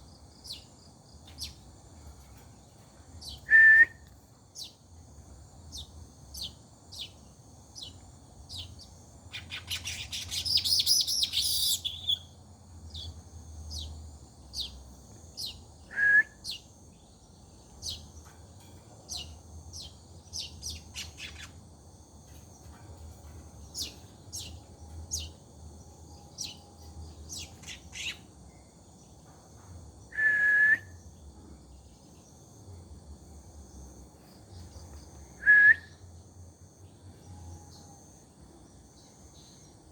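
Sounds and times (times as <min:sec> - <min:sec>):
birds chirping: 0:05.7 - 0:15.7, 0:16.5 - 0:21.7, 0:22.3 - 0:29.2.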